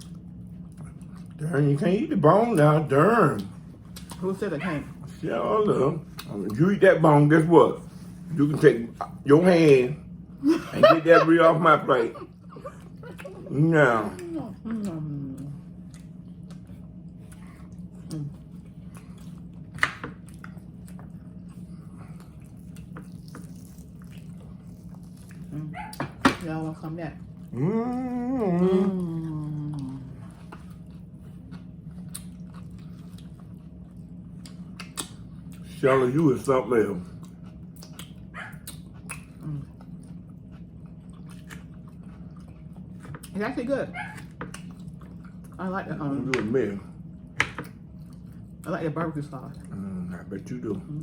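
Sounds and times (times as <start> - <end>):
wet chewing: 0.0 - 9.9, 11.0 - 26.6, 27.2 - 51.0
lip smacks: 34.4 - 35.6, 37.7 - 39.5.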